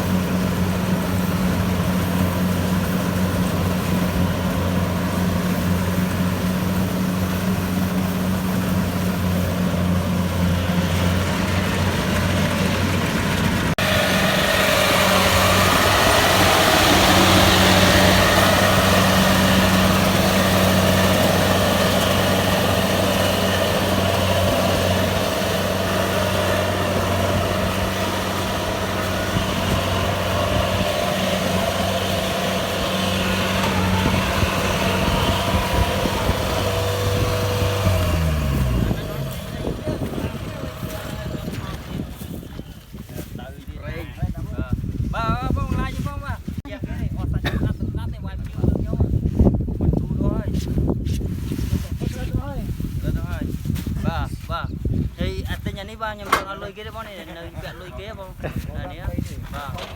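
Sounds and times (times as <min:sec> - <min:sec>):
rushing mechanical noise: 0:00.0 - 0:42.5
combine harvester diesel engine: 0:00.0 - 0:43.4, 0:55.2 - 0:59.9.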